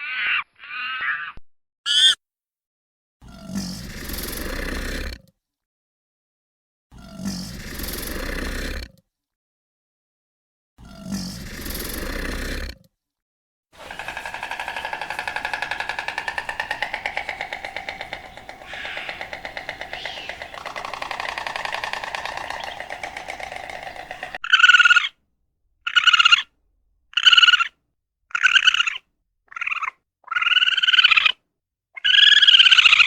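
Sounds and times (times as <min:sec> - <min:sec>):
farm animal calling: 0:01.9 - 0:02.2, 0:13.8 - 0:25.1.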